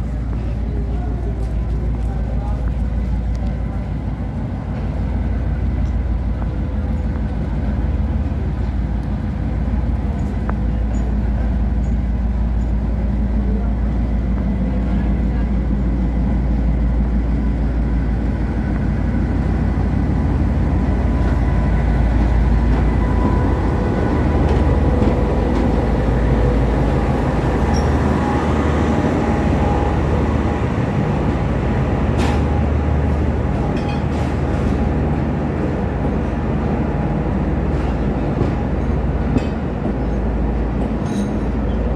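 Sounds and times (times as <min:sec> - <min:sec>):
train rumbling: 0:00.0 - 0:41.9.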